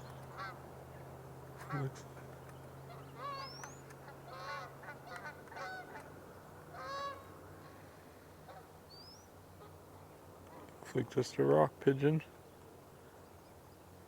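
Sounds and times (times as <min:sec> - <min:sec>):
geese honking: 0:04.3 - 0:06.1, 0:06.7 - 0:07.3.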